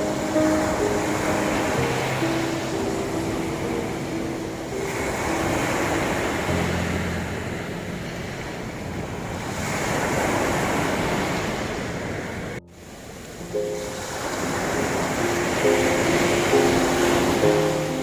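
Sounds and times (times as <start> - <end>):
soft low piano notes: 0.0 - 9.6
ocean surf on shore: 0.0 - 18.0.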